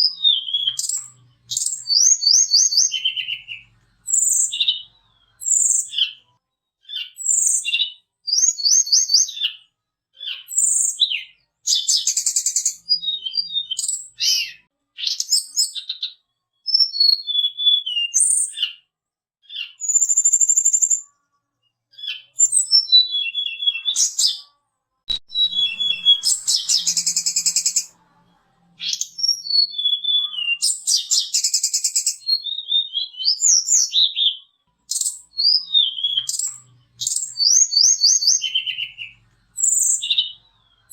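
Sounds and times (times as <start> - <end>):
high whistled singing: 0.0 - 6.2, 7.0 - 9.6, 10.5 - 15.8, 25.1 - 27.9, 28.8 - 40.9.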